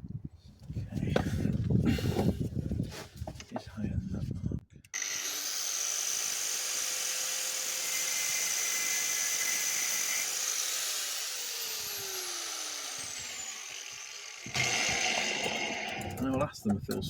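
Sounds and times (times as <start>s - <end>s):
angle grinder whining: 5.0s - 16.4s
grinder disc spinning down: 10.9s - 16.4s.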